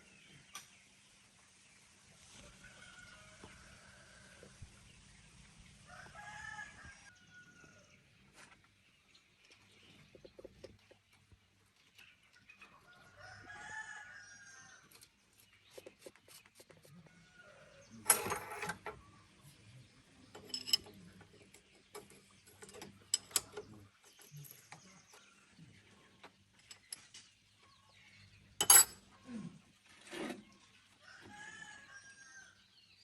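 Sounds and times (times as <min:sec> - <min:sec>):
metal tools clanking on metal: 0:18.0 - 0:19.0, 0:20.3 - 0:24.9, 0:26.6 - 0:27.2, 0:28.6 - 0:29.0.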